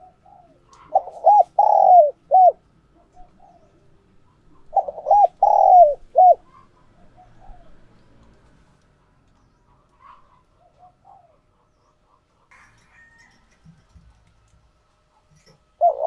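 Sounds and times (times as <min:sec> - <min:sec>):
dove cooing: 0:00.0 - 0:07.8, 0:10.6 - 0:11.5, 0:15.3 - 0:16.0.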